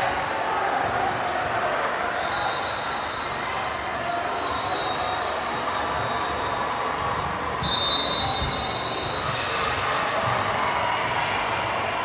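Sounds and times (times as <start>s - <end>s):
players and spectators: 0.0s - 12.0s.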